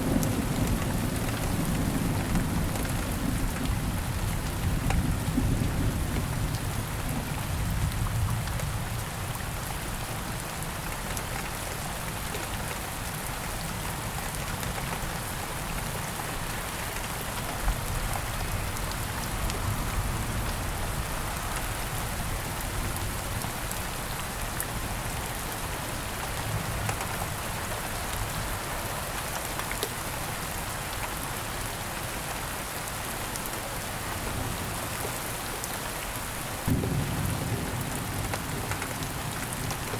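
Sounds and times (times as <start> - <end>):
steady rain falling: 0.0 - 39.9
distant thunder rumble: 36.6 - 39.9.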